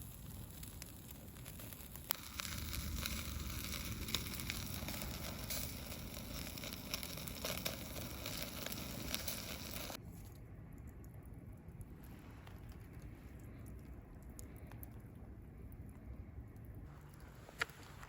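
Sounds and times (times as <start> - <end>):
sharp pops of fire: 0.0 - 10.0
campfire crackling and hissing: 0.0 - 18.0.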